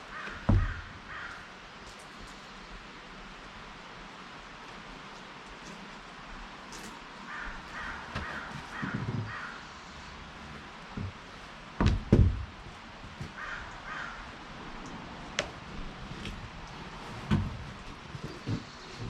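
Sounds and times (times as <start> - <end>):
heavy thumps: 0.5 - 0.9, 11.8 - 13.4
bird calling: 7.3 - 9.8, 13.3 - 14.4.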